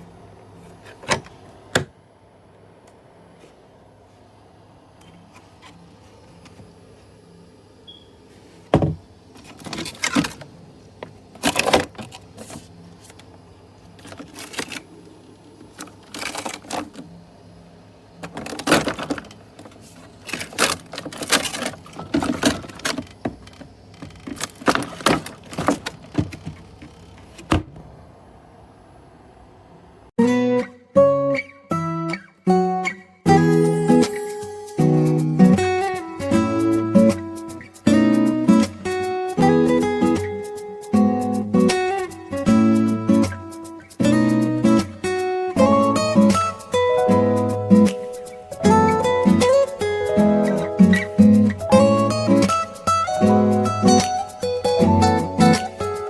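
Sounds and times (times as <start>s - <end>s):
plastic fridge knocks and rattles: 1.0s - 1.9s, 8.7s - 12.6s, 20.4s - 27.9s.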